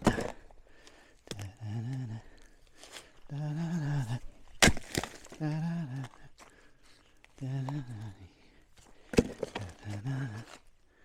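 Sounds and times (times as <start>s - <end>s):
axe splitting logs: 0.0s - 0.6s, 4.4s - 6.1s, 8.8s - 10.6s
man's low voice: 3.3s - 4.4s, 7.4s - 8.5s.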